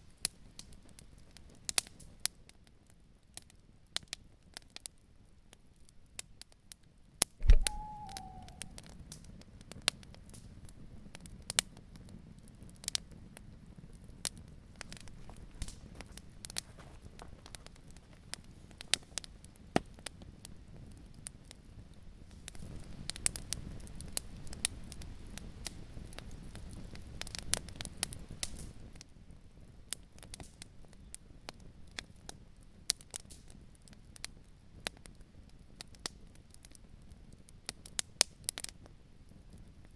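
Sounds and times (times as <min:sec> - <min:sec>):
brief falling tone: 0:07.4 - 0:08.8
campfire crackling and popping: 0:07.4 - 0:08.8, 0:11.2 - 0:39.9
loud low thump: 0:07.4 - 0:08.8
wind rushing: 0:07.4 - 0:08.8.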